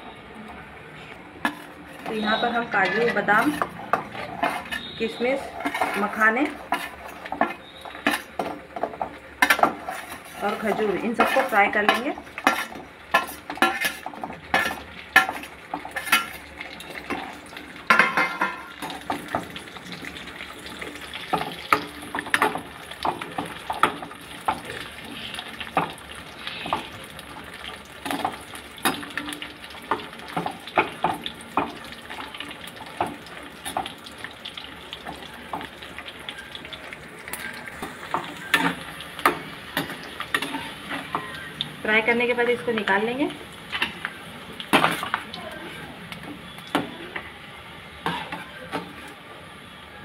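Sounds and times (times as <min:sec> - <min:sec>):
nuts frying in hot fat: 0:00.0 - 0:50.0
metal spoon clinking against pan: 0:01.4 - 0:16.4, 0:38.1 - 0:41.5.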